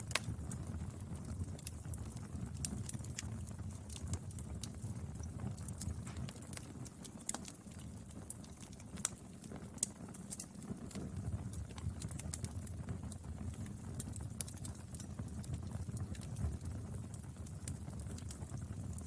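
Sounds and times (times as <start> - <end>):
burning wood crackling: 0.0 - 19.0
low rumble of flame: 0.0 - 19.0.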